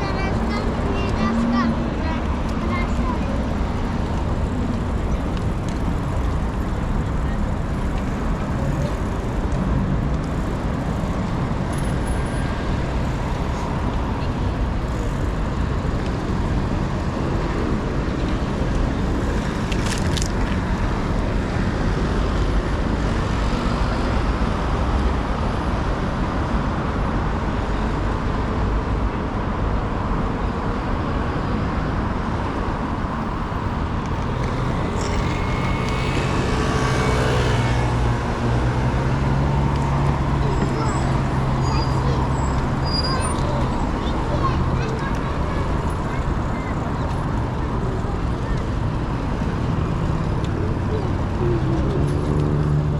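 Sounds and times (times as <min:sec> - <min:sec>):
passing cars and road noise: 0:00.0 - 0:52.9
vehicle engine passing close: 0:33.0 - 0:46.4.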